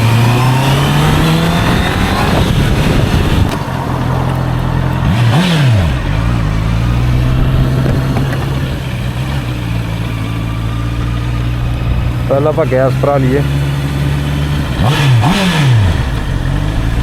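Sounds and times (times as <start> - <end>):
wind noise: 0.0 - 4.2, 5.0 - 10.2
motorcycle engine running: 0.0 - 17.0.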